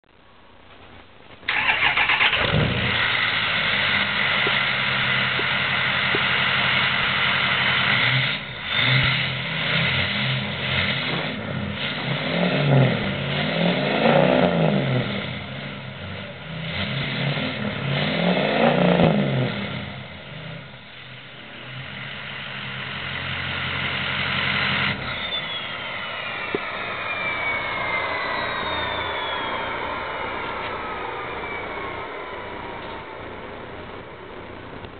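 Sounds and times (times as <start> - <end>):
diesel engine idling and revving: 1.5 - 34.9
turbo whistle: 25.0 - 33.6.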